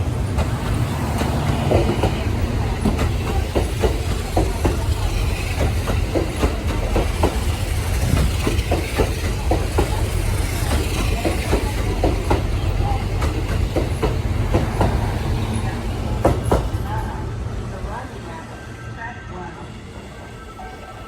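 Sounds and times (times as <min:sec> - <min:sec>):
electric train rumbling on rails: 0:00.0 - 0:21.0
wheels clacking over rail joints: 0:00.3 - 0:15.1.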